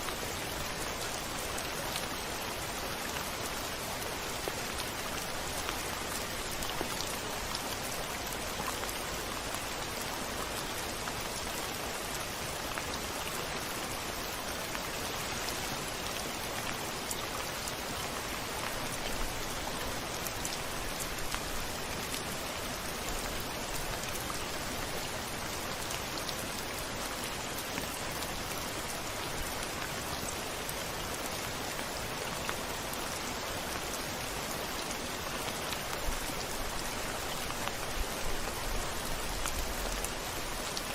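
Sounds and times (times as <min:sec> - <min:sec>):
rain on a window: 0:00.0 - 0:40.9.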